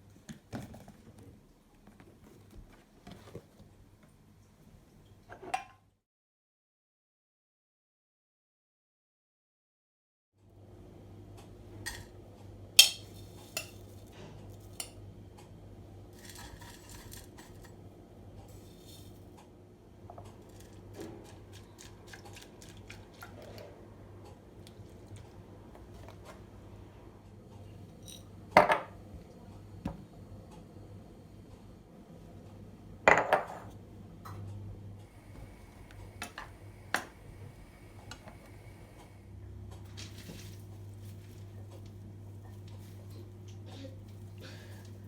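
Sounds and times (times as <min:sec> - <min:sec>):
dishes clattering: 0:12.8 - 0:13.8
dishes and utensils clinking: 0:12.8 - 0:15.0
steady low hum: 0:23.7 - 0:45.0.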